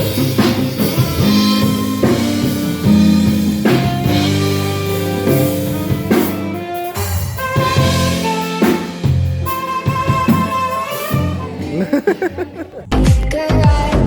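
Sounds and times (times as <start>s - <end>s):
drum kit: 0.0s - 14.0s
guitar: 0.0s - 14.0s
live band playing: 0.0s - 14.0s
sustained bass notes: 0.0s - 14.0s.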